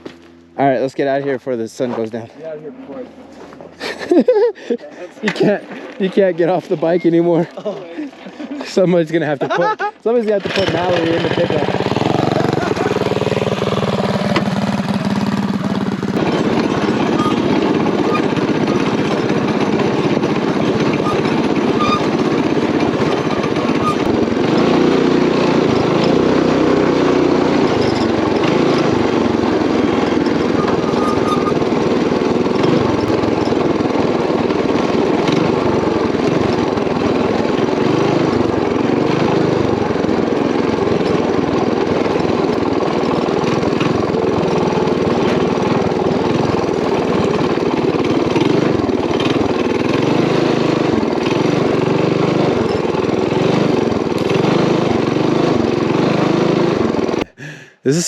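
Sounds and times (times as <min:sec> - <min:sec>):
mini bike engine running: 0:03.8 - 0:58.0.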